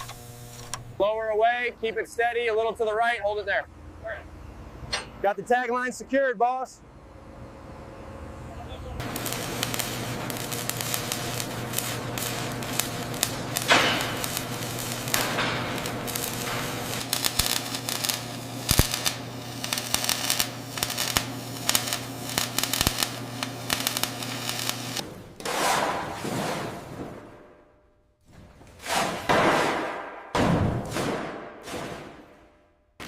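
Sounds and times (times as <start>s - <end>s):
industrial machine hum: 0.0s - 5.5s, 6.7s - 25.4s
dense crackling and clicking: 9.0s - 25.0s.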